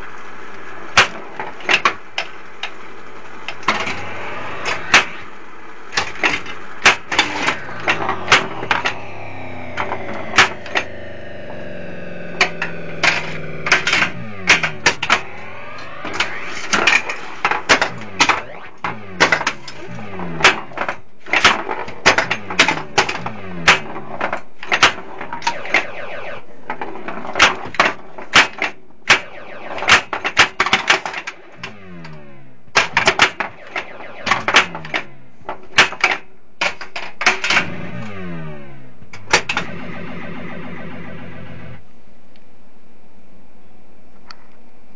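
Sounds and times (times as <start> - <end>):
electronic sweeping sound effects: 3.5 - 5.9, 6.8 - 27.9, 29.1 - 35.5, 37.6 - 41.9.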